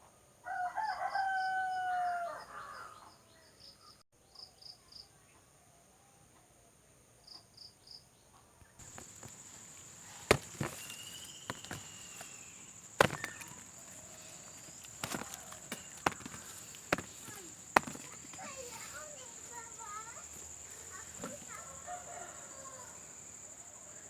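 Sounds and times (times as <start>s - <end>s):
faint chirps: 8.6s - 24.0s
sharp knocks: 8.8s - 19.1s.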